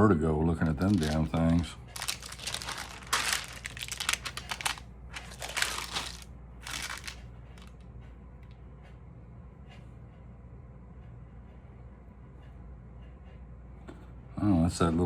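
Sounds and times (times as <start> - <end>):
paper packets crinkling: 0.6 - 7.7.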